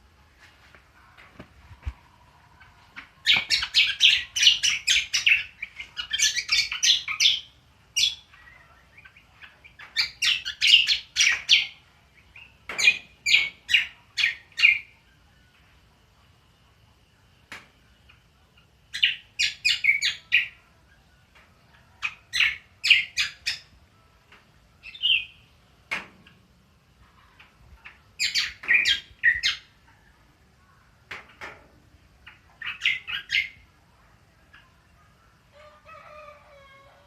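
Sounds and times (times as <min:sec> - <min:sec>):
bird chattering song: 0:03.2 - 0:15.0, 0:18.0 - 0:20.6, 0:22.0 - 0:23.7, 0:24.8 - 0:25.5, 0:27.4 - 0:29.8, 0:32.2 - 0:33.6.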